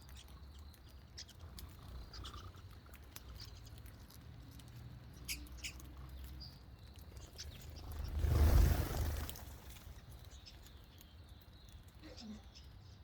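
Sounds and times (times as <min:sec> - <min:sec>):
birds chirping: 0:05.0 - 0:13.0
loud rushing noise: 0:08.0 - 0:09.6.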